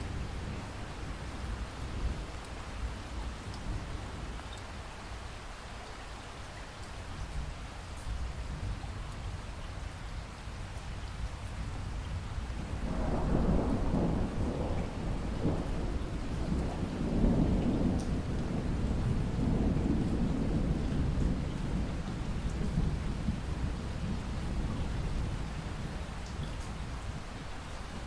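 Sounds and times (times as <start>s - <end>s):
steady rain: 0.0s - 28.0s
thunder rolling: 12.7s - 25.4s.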